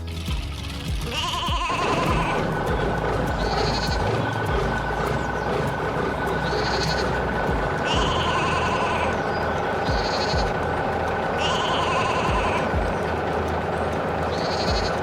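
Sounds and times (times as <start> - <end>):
steady background tone and hum: 0.0 - 15.0
sheep bleating: 1.1 - 2.8, 7.9 - 9.2.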